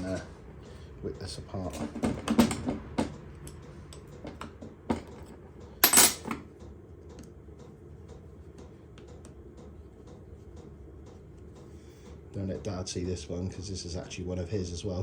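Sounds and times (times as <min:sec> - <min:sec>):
metal parts and tools clattering: 0:05.8 - 0:06.4.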